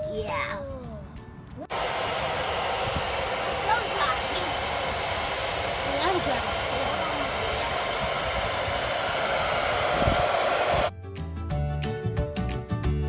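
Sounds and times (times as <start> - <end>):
hair dryer running: 1.7 - 10.9.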